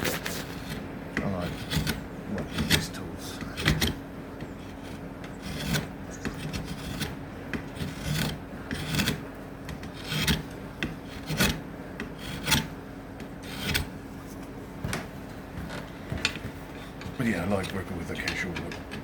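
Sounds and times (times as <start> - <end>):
rasp scraping wood: 0.0 - 14.4.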